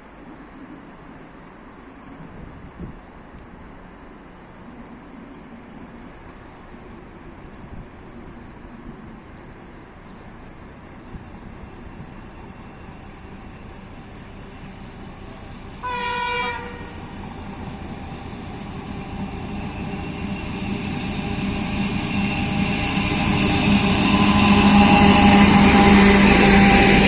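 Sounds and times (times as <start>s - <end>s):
diesel locomotive engines drone: 0.0s - 27.0s
locomotive horn blast: 15.7s - 17.1s.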